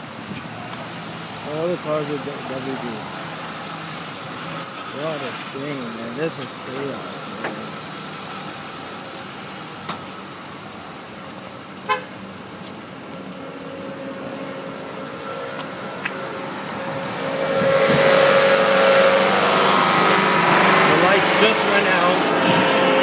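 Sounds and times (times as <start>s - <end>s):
car approaching: 0.0s - 23.0s
road traffic: 0.0s - 23.0s
steady horn-like tone: 13.4s - 23.0s.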